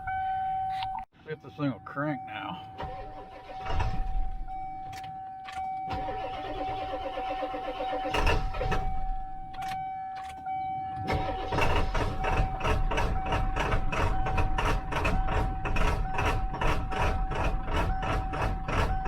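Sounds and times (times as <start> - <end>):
diesel engine cranking: 2.7 - 10.4, 11.0 - 19.0
engine firing unevenly: 11.1 - 19.0.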